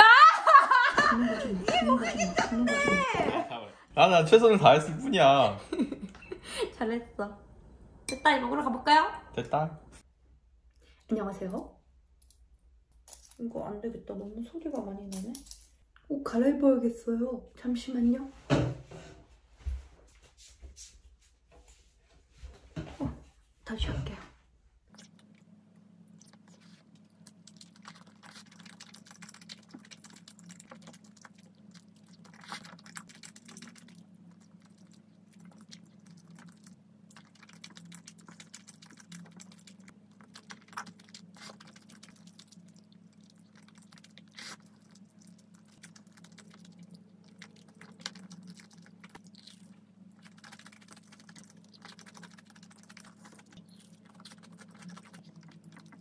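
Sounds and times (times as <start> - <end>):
faint low hum: 21.5 - 56.0
chewing and wet mouth sounds: 24.8 - 56.0.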